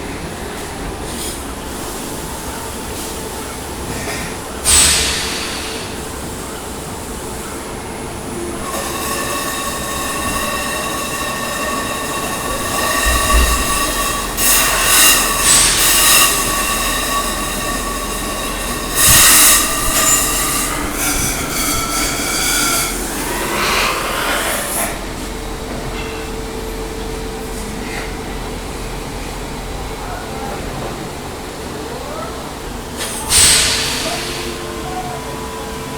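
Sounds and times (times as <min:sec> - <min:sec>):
steady hum: 0:04.7 - 0:29.3
stepper motors whining: 0:07.6 - 0:26.0.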